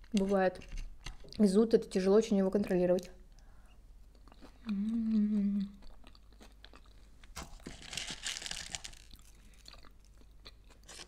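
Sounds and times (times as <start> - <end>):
loud crunching chewing: 5.8 - 11.0.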